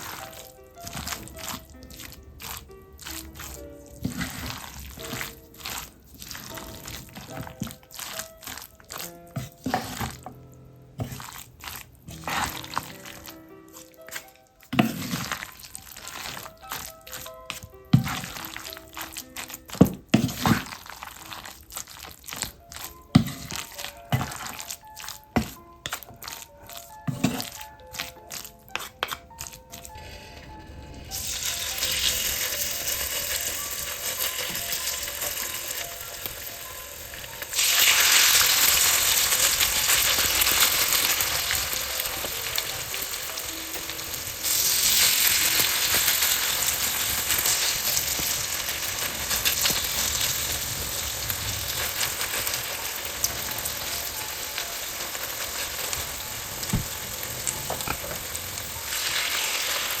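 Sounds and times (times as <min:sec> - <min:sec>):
fritters sizzling in oil: 0:31.0 - 1:00.0.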